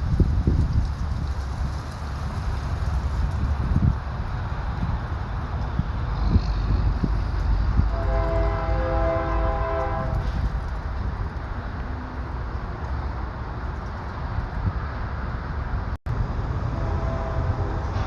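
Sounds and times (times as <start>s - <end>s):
engine and road rumble: 0.0s - 18.0s
truck air horn chord: 7.9s - 10.1s, 16.7s - 18.0s.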